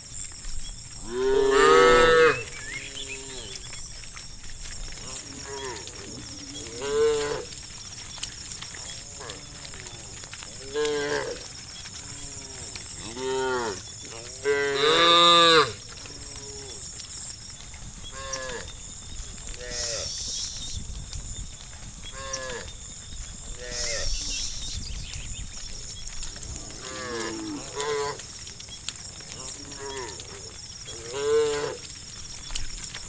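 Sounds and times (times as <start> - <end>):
cows mooing: 1.0 - 3.7, 5.0 - 7.7, 8.5 - 16.9, 26.3 - 28.3, 29.3 - 31.9.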